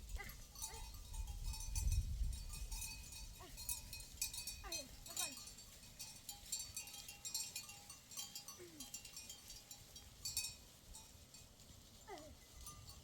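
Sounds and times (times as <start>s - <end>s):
livestock bells clinking: 0.0s - 13.0s.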